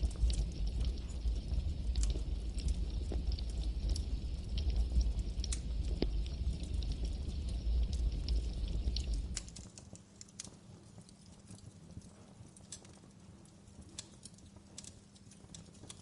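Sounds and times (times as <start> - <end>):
low rumble: 0.0 - 9.4
campfire crackling and popping: 0.0 - 16.0.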